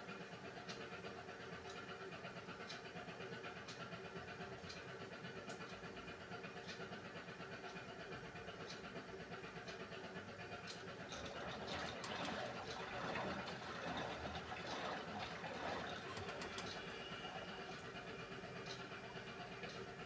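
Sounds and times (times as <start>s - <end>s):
washing machine motor hum: 10.6s - 20.0s.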